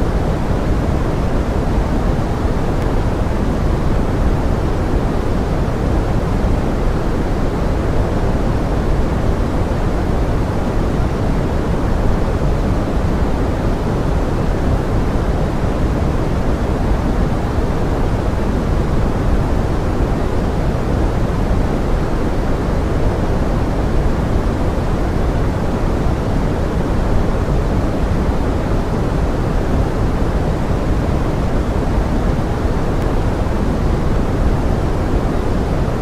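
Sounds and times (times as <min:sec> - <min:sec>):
pink noise: 0:00.0 - 0:36.0.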